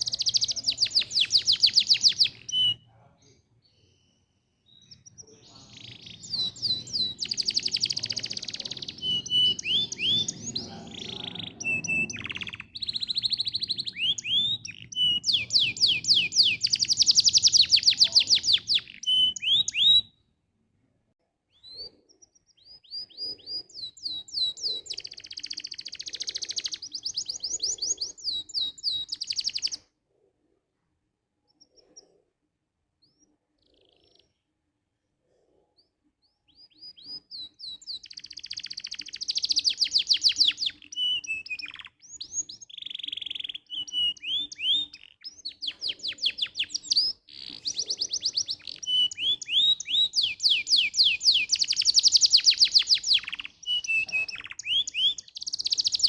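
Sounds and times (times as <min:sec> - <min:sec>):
canary singing trills: 0:00.0 - 0:20.2, 0:21.5 - 0:29.9, 0:33.0 - 0:34.5, 0:35.7 - 0:56.0.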